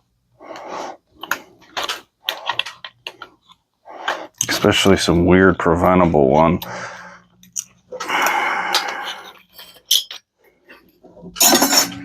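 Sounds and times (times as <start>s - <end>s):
metal parts clinking and scraping: 9.0s - 12.0s.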